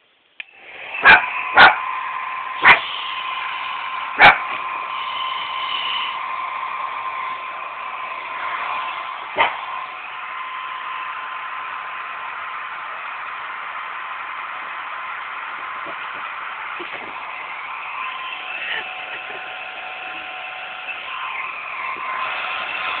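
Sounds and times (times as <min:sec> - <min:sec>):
hair dryer whirring: 0:00.4 - 0:23.0
puppy barking: 0:01.0 - 0:01.8, 0:02.6 - 0:02.9, 0:04.2 - 0:04.5, 0:09.4 - 0:09.6.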